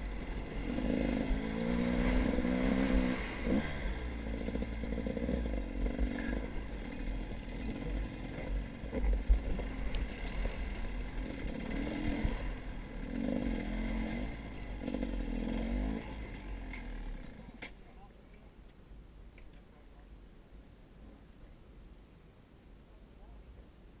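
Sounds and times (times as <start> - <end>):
heavy low rumble: 0.0 - 17.6
vehicle engine running: 0.0 - 17.6.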